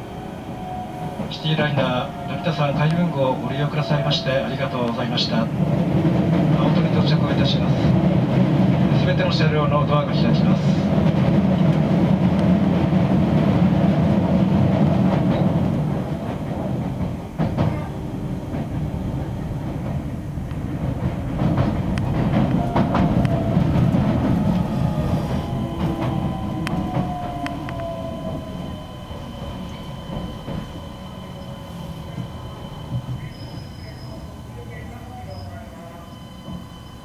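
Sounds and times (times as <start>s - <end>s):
train motor whine: 0.0s - 6.1s, 15.4s - 37.0s
train low rumble: 0.0s - 37.0s.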